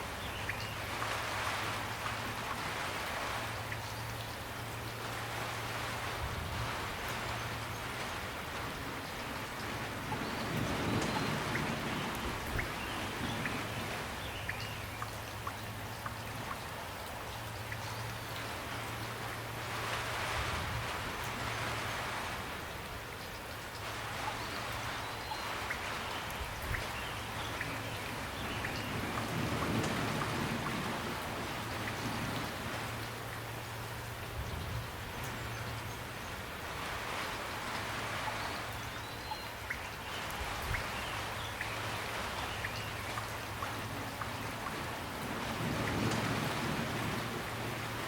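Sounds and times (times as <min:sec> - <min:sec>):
raindrops tapping close by: 0:00.0 - 0:48.0
steady rain falling: 0:00.0 - 0:48.0.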